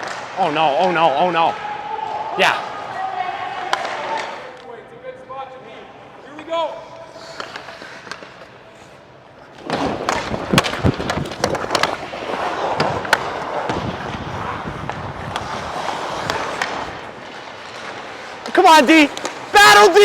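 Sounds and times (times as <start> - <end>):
hockey sticks and puck clacking: 0.0 - 2.2, 3.5 - 4.7, 6.2 - 20.0
skates scraping across ice: 6.0 - 20.0.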